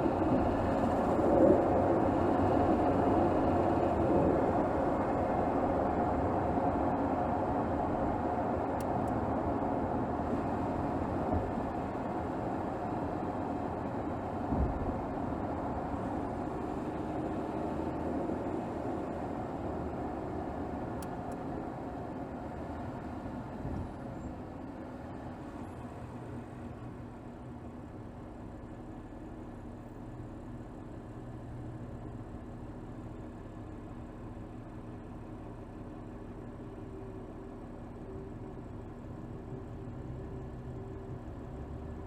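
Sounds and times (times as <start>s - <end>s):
car engine running: 0.0s - 42.0s
low thump: 14.5s - 14.9s.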